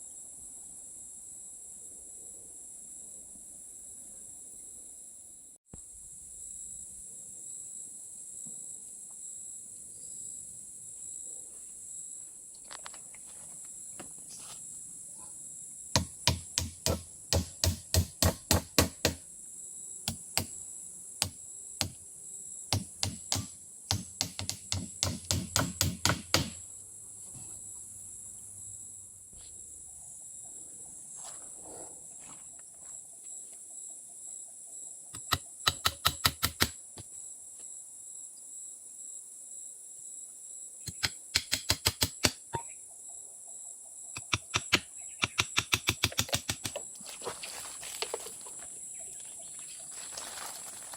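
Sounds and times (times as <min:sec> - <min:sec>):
forest insects droning: 0:00.0 - 0:50.9
sharp chopping knocks: 0:16.0 - 0:19.2, 0:20.1 - 0:20.6, 0:21.2 - 0:22.0, 0:22.7 - 0:26.6.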